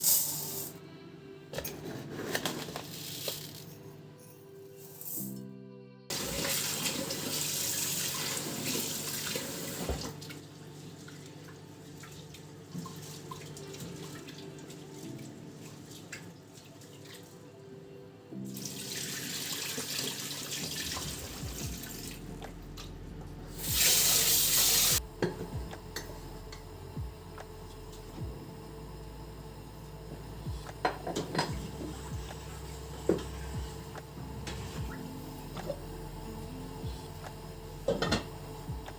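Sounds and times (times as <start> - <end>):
tap water running into sink: 6.1 - 10.4, 18.6 - 22.2.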